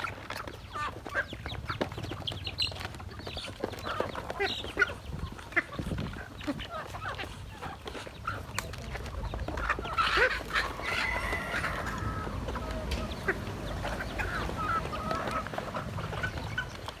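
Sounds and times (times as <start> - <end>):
poultry flock calling: 0.3 - 17.0
geese honking: 6.5 - 17.0
steady low rumble: 11.5 - 16.8.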